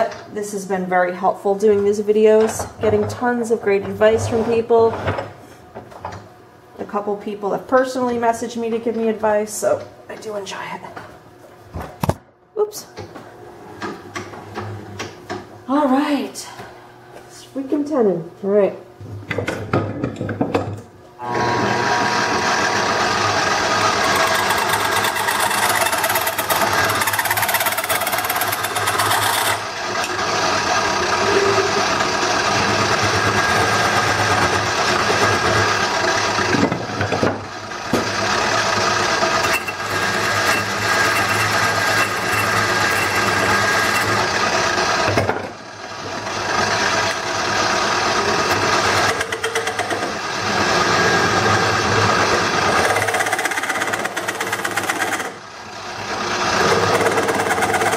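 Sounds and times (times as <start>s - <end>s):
lathe tool scraping wood: 21.2s - 36.6s, 37.7s - 45.2s, 46.0s - 55.3s
lathe motor hum: 21.2s - 57.9s.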